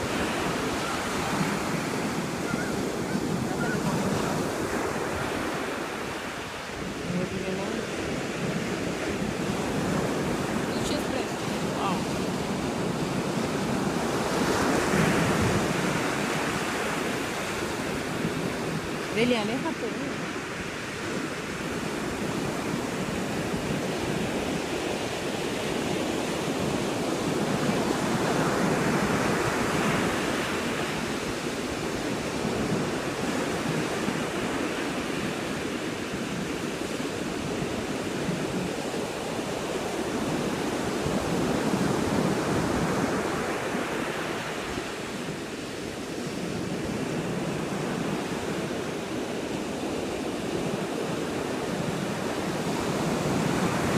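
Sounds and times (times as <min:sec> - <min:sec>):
ocean surf washing: 0:00.0 - 0:53.9.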